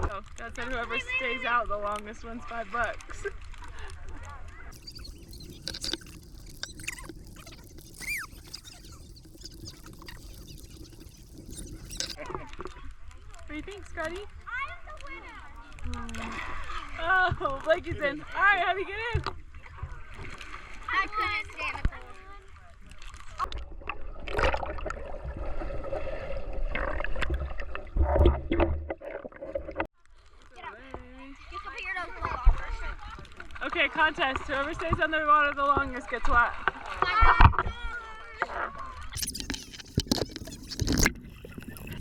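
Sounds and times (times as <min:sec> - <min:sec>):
faint water patter: 0:00.0 - 0:37.1, 0:39.1 - 0:42.0
high squeal falling in pitch: 0:04.7 - 0:12.2
water sloshing and splashing: 0:04.7 - 0:12.2, 0:39.2 - 0:42.0.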